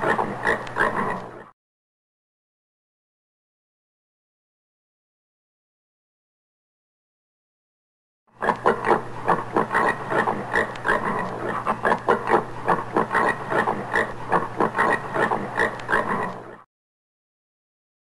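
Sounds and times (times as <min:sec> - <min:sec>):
warthog grunting: 0:00.0 - 0:01.5, 0:08.4 - 0:16.6.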